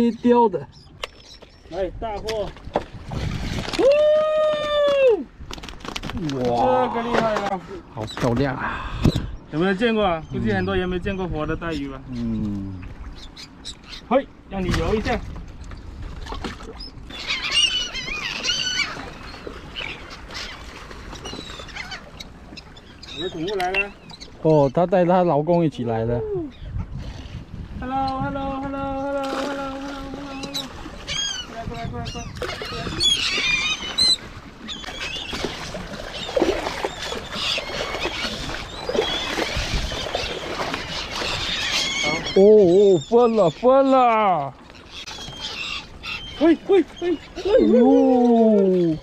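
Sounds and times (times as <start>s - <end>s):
birds calling: 0.0s - 3.0s, 4.6s - 49.0s
catch splashing in a net: 35.0s - 41.3s.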